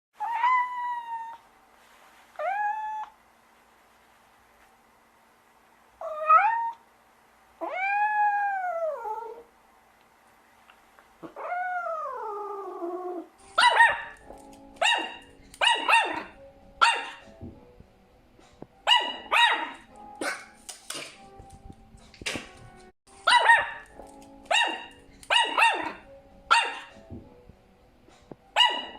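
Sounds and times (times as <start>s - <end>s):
dog barking: 13.6s - 14.2s, 14.8s - 17.2s, 18.9s - 20.6s, 23.3s - 23.9s, 24.5s - 26.9s, 28.6s - 28.9s.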